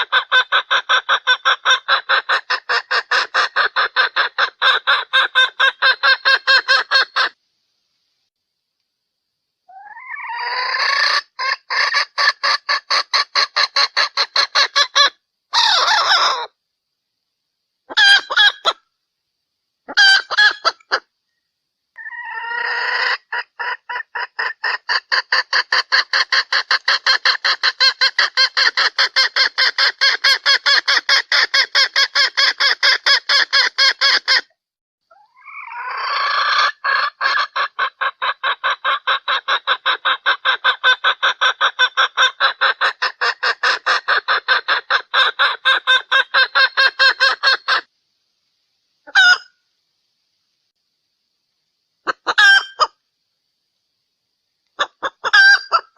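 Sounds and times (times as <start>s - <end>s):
junglefowl hen clucking: 0.0s - 7.4s, 9.7s - 16.6s, 17.9s - 18.8s, 19.9s - 21.1s, 22.0s - 34.5s, 35.1s - 47.9s, 49.0s - 49.6s, 52.0s - 53.0s, 54.7s - 55.9s.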